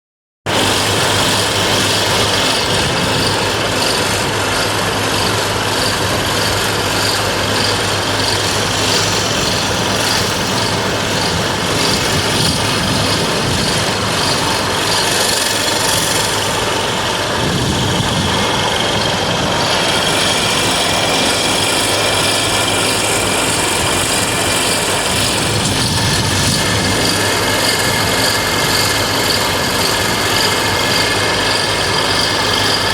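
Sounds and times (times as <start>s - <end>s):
low engine hum: 0.5s - 32.9s
material being worked: 0.5s - 32.9s.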